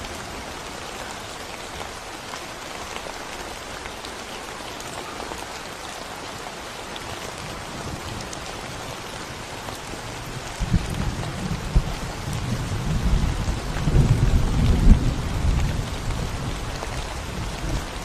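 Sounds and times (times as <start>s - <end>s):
rain on concrete road: 0.0s - 18.0s
low rumble of thunder: 10.1s - 18.0s.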